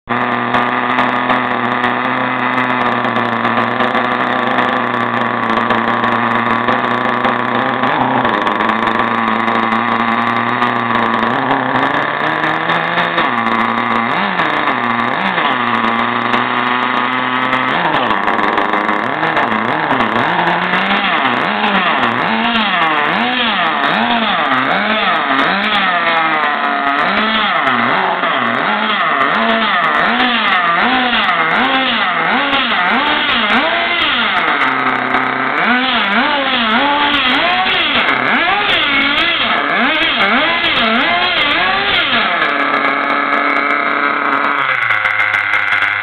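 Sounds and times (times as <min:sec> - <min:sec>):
model car engine revving: 0:00.0 - 0:46.0.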